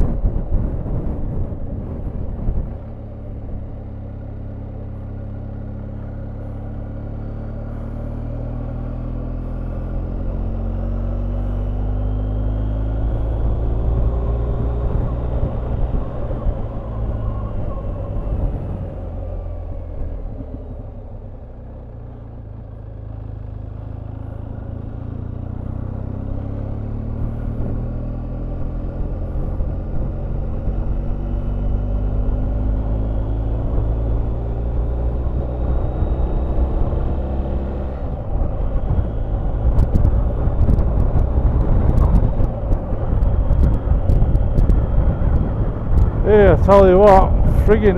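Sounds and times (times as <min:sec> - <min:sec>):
low wind rumble: 0:00.0 - 0:47.9
motorcycle engine accelerating: 0:00.0 - 0:47.9.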